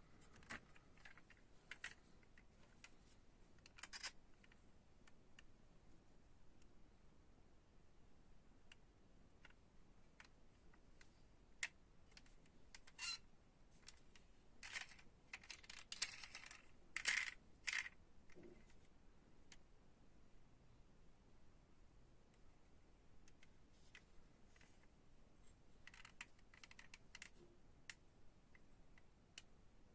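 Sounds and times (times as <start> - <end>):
light clicks and taps of toy cars: 0.3 - 5.5, 9.4 - 13.0, 13.8 - 18.8, 23.2 - 24.9, 25.8 - 29.5.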